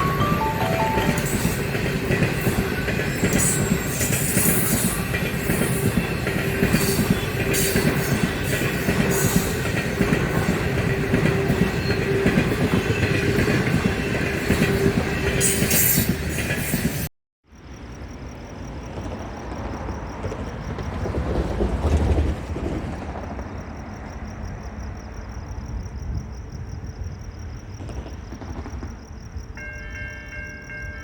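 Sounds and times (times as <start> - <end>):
train running on track: 0.0 - 17.1, 17.8 - 31.0
wheels clicking and squealing: 0.0 - 17.1.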